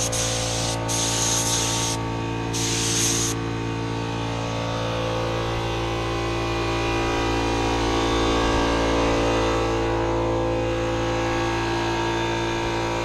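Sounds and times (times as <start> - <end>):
steady hiss: 0.0 - 2.0, 2.6 - 3.4
motor running: 0.0 - 6.0.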